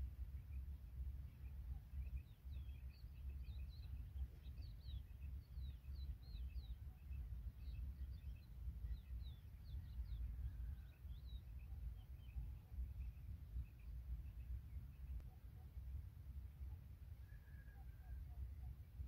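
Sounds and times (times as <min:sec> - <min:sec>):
wind rumble on microphone: 0:00.0 - 0:15.2
small birds chirping: 0:00.2 - 0:16.9.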